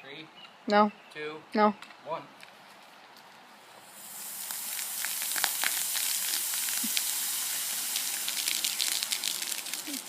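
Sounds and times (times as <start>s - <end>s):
soda geyser fizzing hiss: 3.8s - 10.0s
foam crackling pops: 4.0s - 10.0s.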